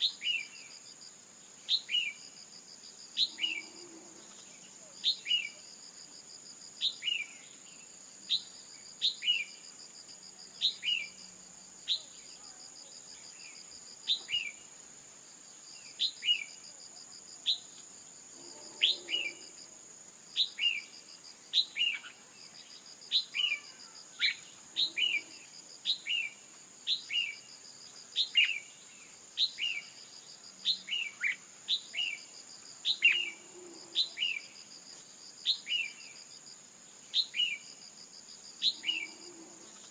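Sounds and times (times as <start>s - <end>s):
insect trill: 0.0s - 39.9s
bird chirping: 10.6s - 11.2s, 18.5s - 19.6s, 30.6s - 34.5s.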